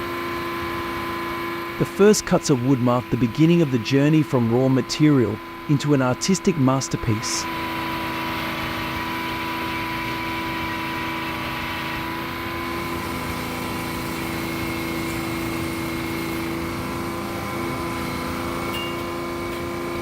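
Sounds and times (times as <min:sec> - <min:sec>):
sawmill machinery humming: 0:00.0 - 0:20.0.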